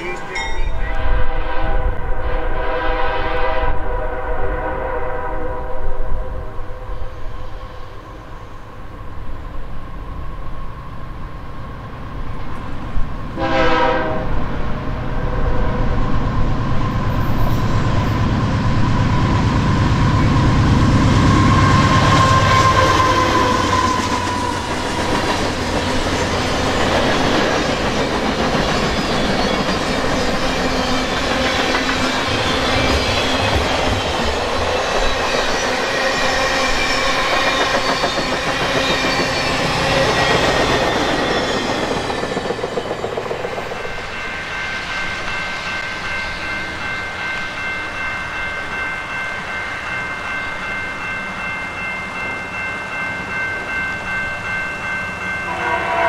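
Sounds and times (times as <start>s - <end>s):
locomotive air horn: 0.9s - 5.9s, 13.4s - 14.4s, 55.5s - 56.0s
train cars clickety-clack: 16.8s - 46.2s.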